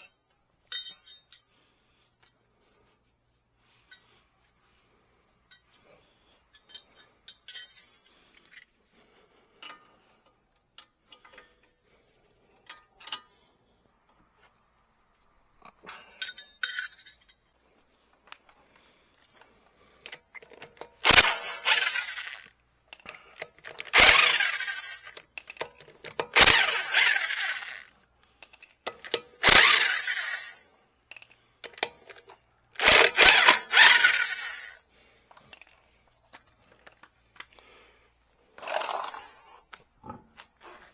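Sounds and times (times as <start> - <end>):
power tool bursts: 21.0 - 22.5, 23.6 - 25.2, 26.3 - 27.9, 29.4 - 30.6, 32.8 - 34.8.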